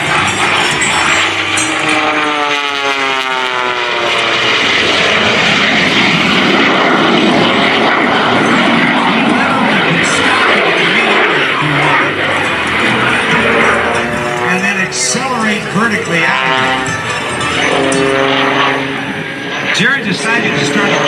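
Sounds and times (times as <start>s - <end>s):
biplane engine and propeller flying past: 0.0s - 21.0s.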